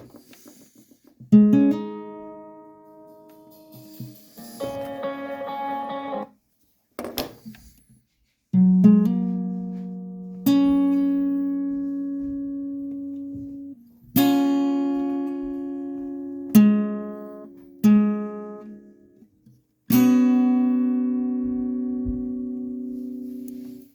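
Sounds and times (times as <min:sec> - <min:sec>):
guitar slow chords ringing: 0:01.4 - 0:06.4, 0:19.9 - 0:23.8.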